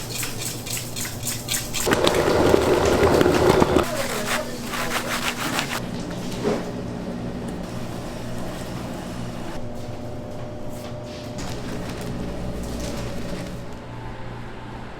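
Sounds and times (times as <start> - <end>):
machine humming: 1.8 - 4.0.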